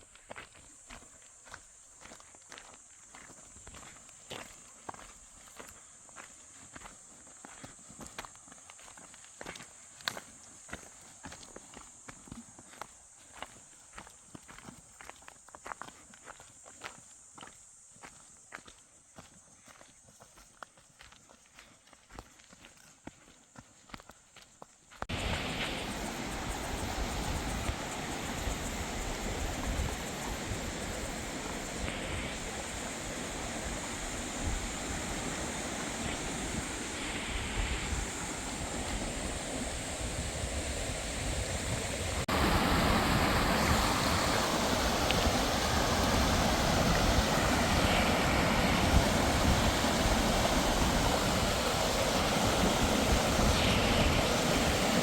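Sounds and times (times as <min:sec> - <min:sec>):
waterfall roaring: 0:25.1 - 0:40.8, 0:41.7 - 0:55.0.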